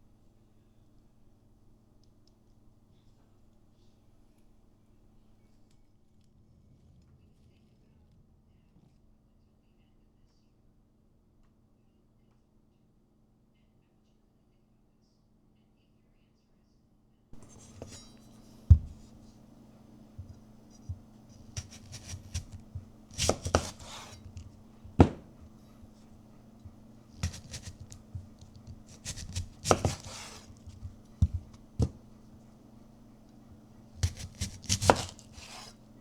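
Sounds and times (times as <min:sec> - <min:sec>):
clattering scraping rustles: 0:17.4 - 0:19.4
low steady hum: 0:17.4 - 0:36.0
sharp knocks: 0:24.9 - 0:25.4.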